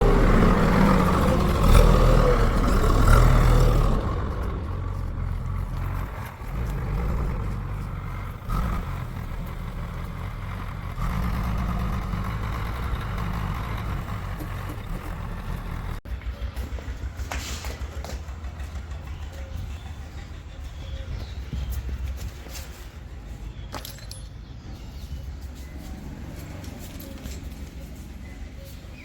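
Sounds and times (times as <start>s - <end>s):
heavy machinery diesel engine: 0.0s - 22.5s.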